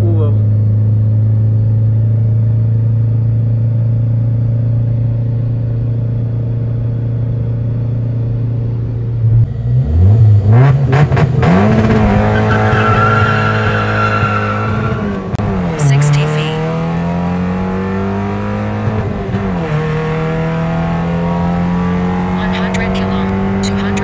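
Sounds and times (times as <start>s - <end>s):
car engine revving: 9.2s - 24.0s
tyres squealing: 12.3s - 15.0s.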